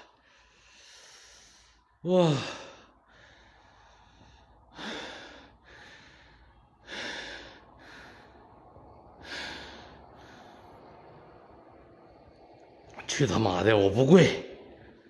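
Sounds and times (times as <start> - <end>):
man breathing heavily: 0.0 - 12.6.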